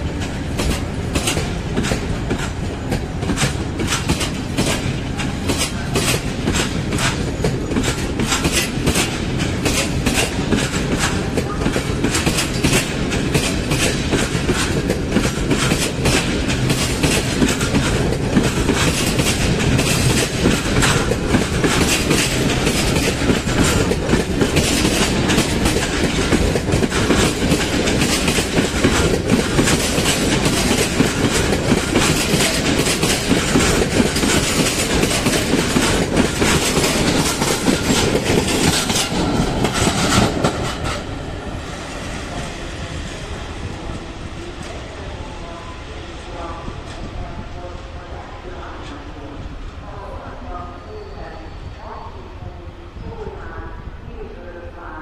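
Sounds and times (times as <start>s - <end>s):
train wheels clattering over rail joints: 0.1s - 41.4s.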